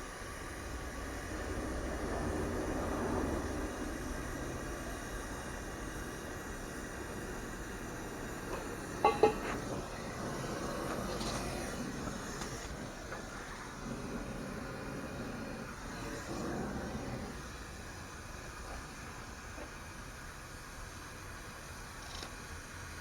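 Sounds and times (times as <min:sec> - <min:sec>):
steady hissing: 0:00.0 - 0:23.0
metal clanks: 0:08.6 - 0:09.6.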